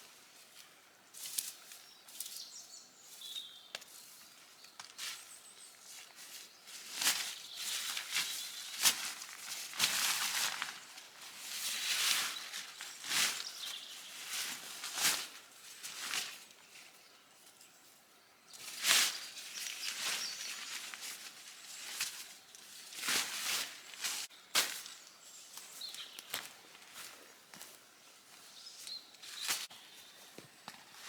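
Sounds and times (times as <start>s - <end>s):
crunching dry woodland debris: 6.0s - 16.6s, 18.6s - 31.0s.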